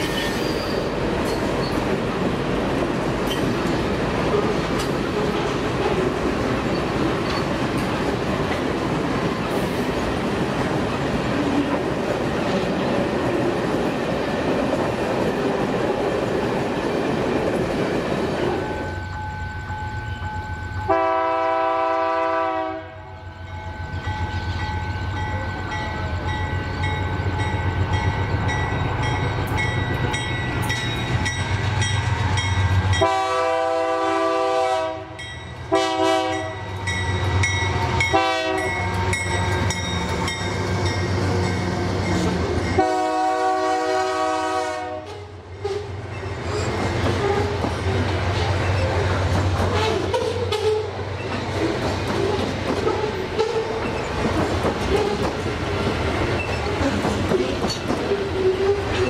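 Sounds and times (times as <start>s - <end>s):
train wheels on rails: 0.0s - 59.0s
multi-tone train horn: 20.8s - 23.3s, 32.9s - 36.7s, 38.0s - 39.3s, 42.7s - 45.9s, 49.7s - 51.0s.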